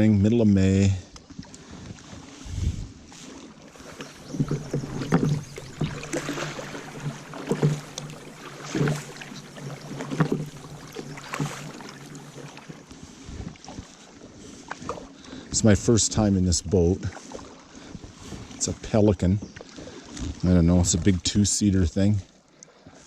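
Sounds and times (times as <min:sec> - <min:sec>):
paddle strokes in water: 0:01.0 - 0:23.0
paddle knocking: 0:01.3 - 0:15.6.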